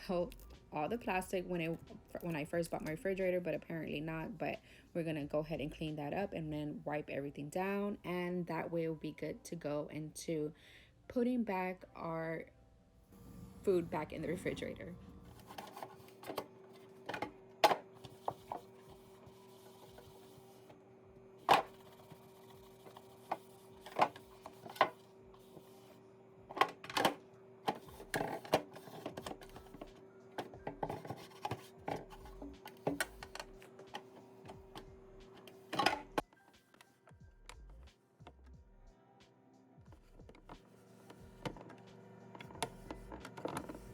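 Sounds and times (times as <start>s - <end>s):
faint hum: 11.8s - 36.4s
plastic parts clicking and knocking: 26.5s - 36.4s.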